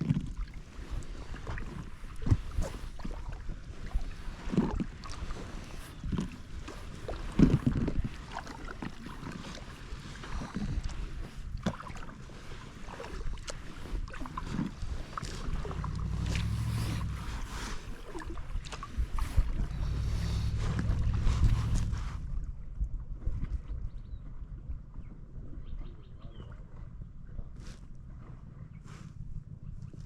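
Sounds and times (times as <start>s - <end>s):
paddle splashing in water: 0.0s - 23.4s
wind on microphone: 12.9s - 30.0s.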